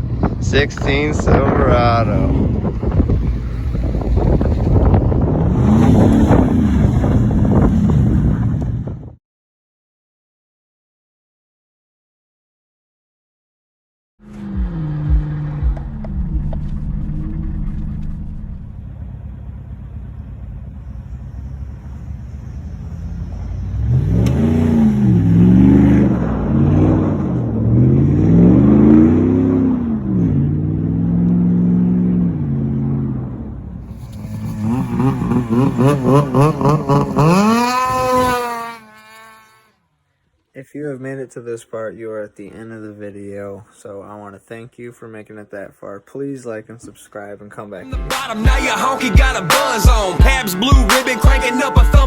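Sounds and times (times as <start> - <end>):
pickup truck engine revving: 0.0 - 8.8, 14.2 - 39.7
short throttle blips: 14.2 - 18.8, 33.9 - 39.7.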